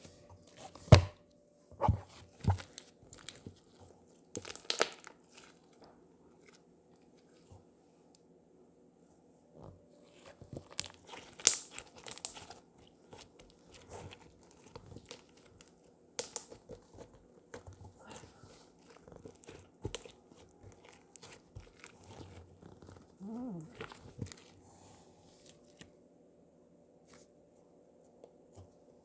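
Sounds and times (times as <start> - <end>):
slime crackling and popping: 4.3 - 5.8, 10.2 - 24.5.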